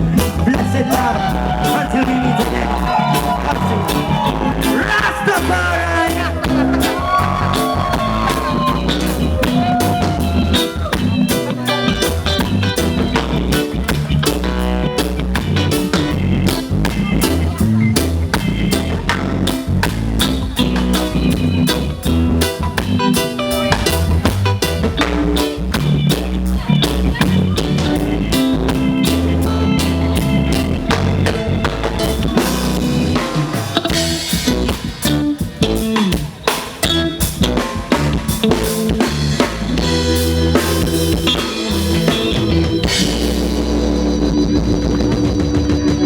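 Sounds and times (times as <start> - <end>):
drum kit beat: 0.0 - 46.0
heavy bass line: 0.0 - 46.0
reggae band playing: 0.0 - 46.0.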